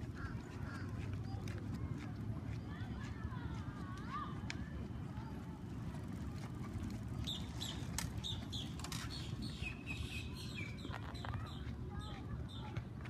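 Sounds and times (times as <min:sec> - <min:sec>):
low outdoor rumble: 0:00.0 - 0:13.0
small birds chirping: 0:07.2 - 0:12.8.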